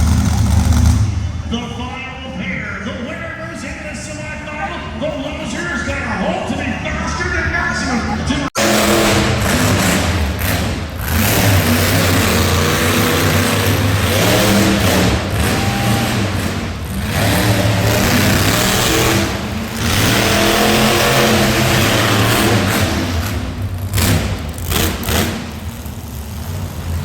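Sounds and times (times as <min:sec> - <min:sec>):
vehicle engine revving: 0:00.0 - 0:01.6, 0:08.4 - 0:27.0.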